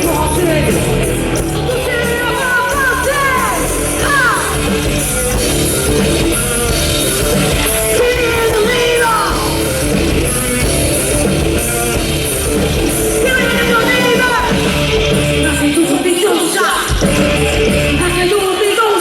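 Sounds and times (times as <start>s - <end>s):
rock band playing live: 0.0s - 19.0s.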